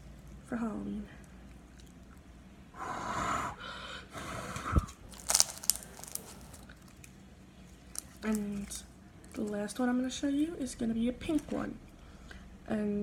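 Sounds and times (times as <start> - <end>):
slime squelching: 4.4 - 12.4
slime crackling pops: 4.8 - 6.7.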